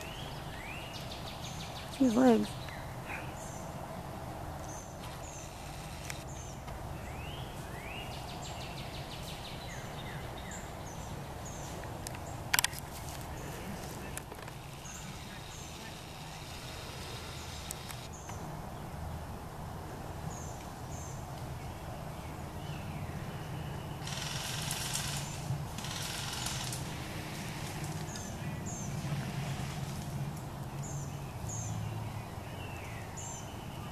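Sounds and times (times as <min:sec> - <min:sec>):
birds chirping: 0:00.0 - 0:19.2, 0:20.2 - 0:33.9
rustling hiss: 0:04.6 - 0:06.8, 0:10.9 - 0:19.6, 0:24.0 - 0:31.7.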